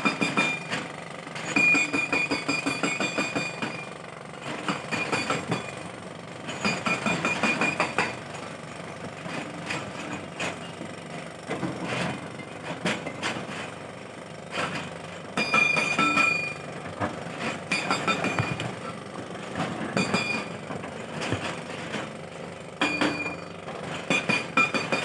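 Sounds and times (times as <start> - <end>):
excavator engine under load: 4.1 - 25.0
metallic clanks and knocks: 15.6 - 22.1.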